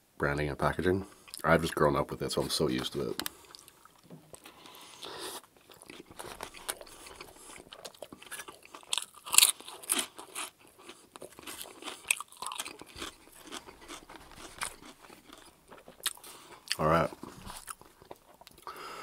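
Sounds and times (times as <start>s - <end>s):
chewing a soft sandwich: 3.2s - 19.0s
crisp potato chip crunching: 5.6s - 18.6s.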